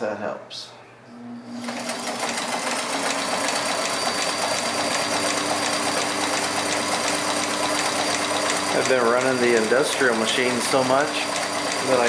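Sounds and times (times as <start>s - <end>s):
sewing machine stitching: 1.5s - 12.0s.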